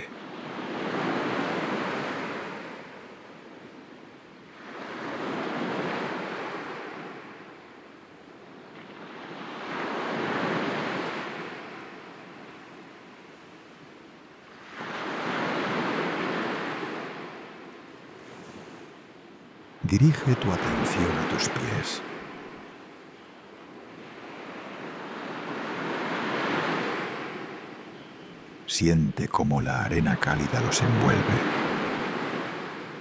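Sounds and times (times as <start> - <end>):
sea waves washing onto shore: 19.9 - 22.6, 28.8 - 33.0.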